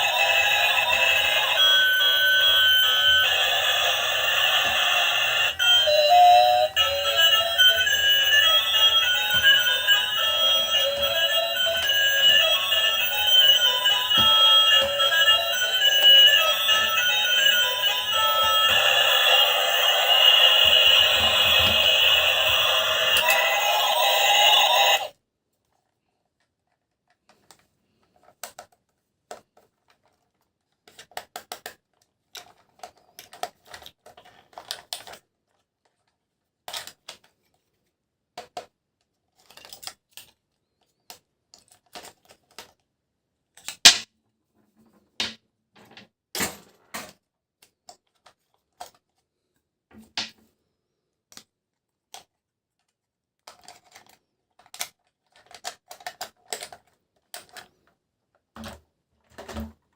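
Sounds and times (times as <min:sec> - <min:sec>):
music: 0:00.0 - 0:25.1
plastic toys clicking: 0:30.8 - 0:35.2, 0:53.4 - 0:57.7.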